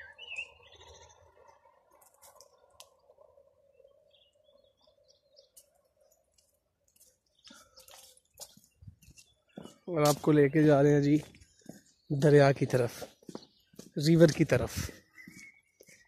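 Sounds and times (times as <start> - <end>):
faint bird chirps: 0.0 - 6.2, 14.9 - 16.0.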